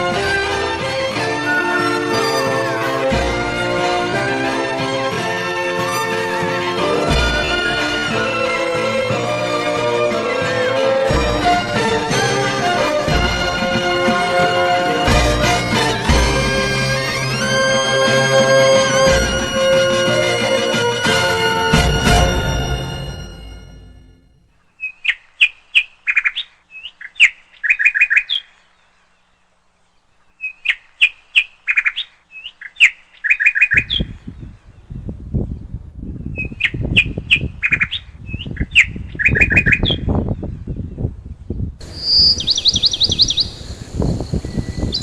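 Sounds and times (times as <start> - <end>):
songbird singing: 24.3 - 45.0
low rumbling noise: 40.2 - 45.0
bird fast high trill: 41.8 - 45.0.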